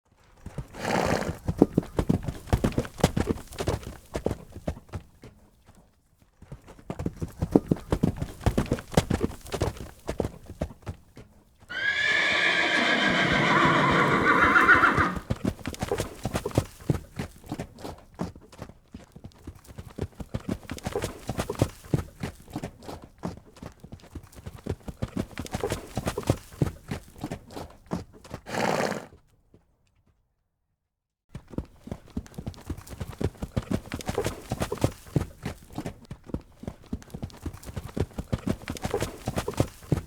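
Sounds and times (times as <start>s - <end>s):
horse hoofbeats running: 0.1s - 30.2s, 31.3s - 40.0s
horse whinny: 11.7s - 15.3s, 28.5s - 29.1s.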